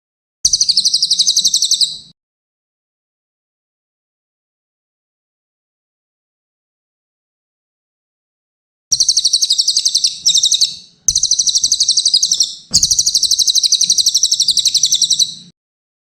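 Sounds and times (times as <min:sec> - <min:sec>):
bird twittering trills: 0:00.5 - 0:02.1, 0:08.9 - 0:15.5.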